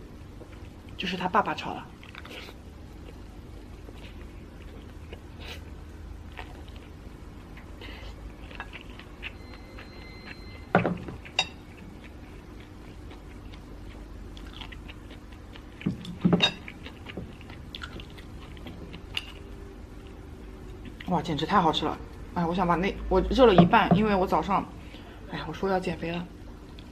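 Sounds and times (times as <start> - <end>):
chewing sticky rice: 1.8 - 22.3.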